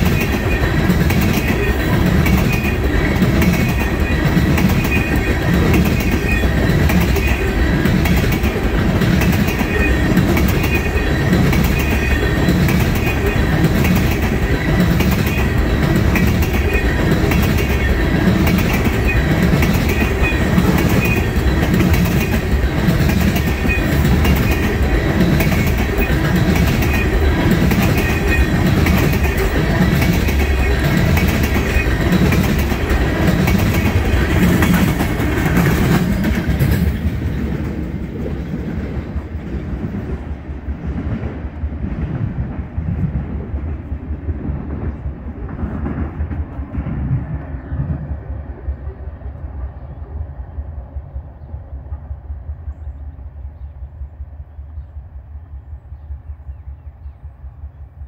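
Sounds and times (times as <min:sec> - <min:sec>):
train wheels clacking over rail joints: 0:00.0 - 0:40.2.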